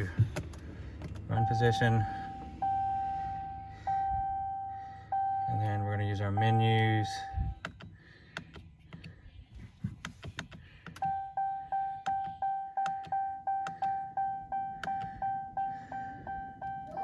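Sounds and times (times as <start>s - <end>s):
dashboard warning chime: 1.2s - 7.6s, 11.0s - 17.0s.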